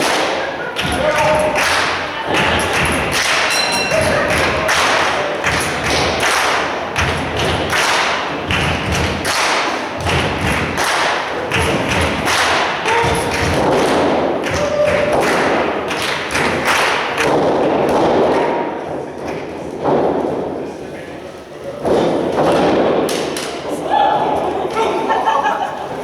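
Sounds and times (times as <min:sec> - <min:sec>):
crowd noise: 0:00.0 - 0:26.0
wrestlers thudding on ring canvas: 0:07.0 - 0:20.5, 0:21.8 - 0:23.6.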